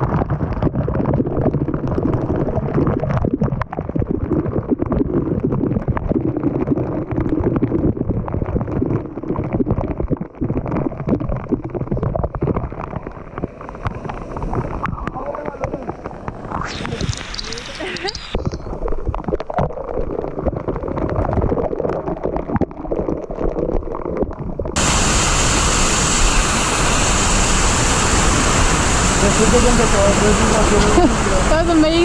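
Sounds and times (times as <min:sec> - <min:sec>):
waterfall rushing and splashing: 0:24.8 - 0:32.0.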